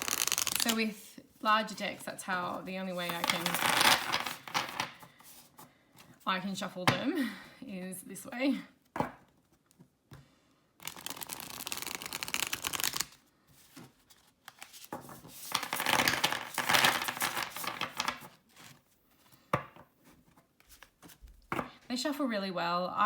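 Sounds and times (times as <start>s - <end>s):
cards shuffling flutter: 0.0s - 1.1s, 10.8s - 18.8s.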